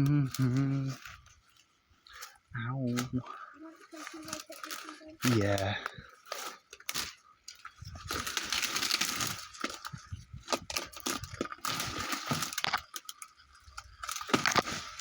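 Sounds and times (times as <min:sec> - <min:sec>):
rustling foliage: 0:00.0 - 0:15.0
twigs and branches snapping: 0:03.9 - 0:15.0.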